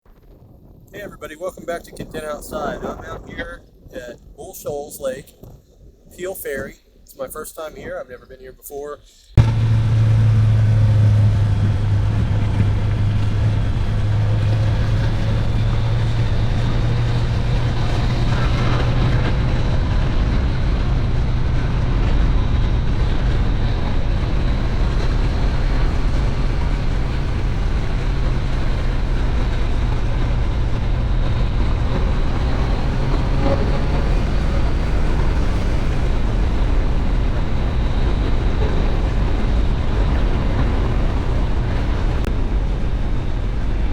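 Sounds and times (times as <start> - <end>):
wind rush on microphone: 0.0 - 8.4, 9.3 - 43.9
engine drone: 9.4 - 43.9
low hum: 9.4 - 43.9.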